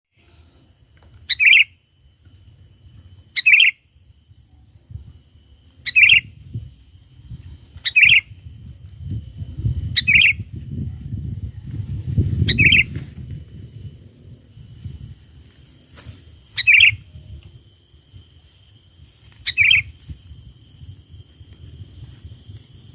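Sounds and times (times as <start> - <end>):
bulbul calls: 1.3 - 1.8, 3.3 - 3.8, 5.8 - 6.4, 7.8 - 8.4, 9.9 - 10.5, 12.4 - 13.0, 16.5 - 17.1, 19.4 - 20.0.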